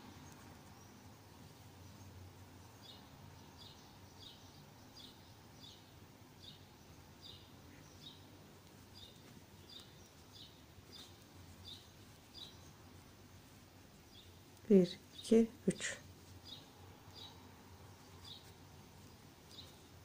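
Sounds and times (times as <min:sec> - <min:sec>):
bird chirping: 0:00.0 - 0:20.0
quiet room hum: 0:00.0 - 0:20.0.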